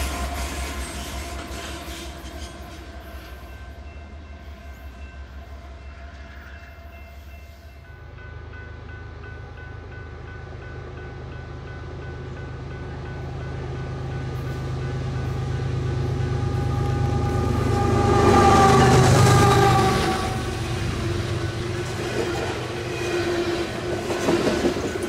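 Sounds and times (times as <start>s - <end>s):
low locomotive rumble: 7.8s - 25.0s
train wheels clicking over rail joints: 20.6s - 25.0s.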